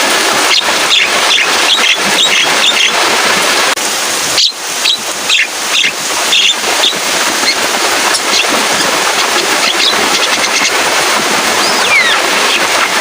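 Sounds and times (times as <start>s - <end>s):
heavy rain hissing: 0.0s - 13.0s
bird giving high calls: 11.6s - 12.9s.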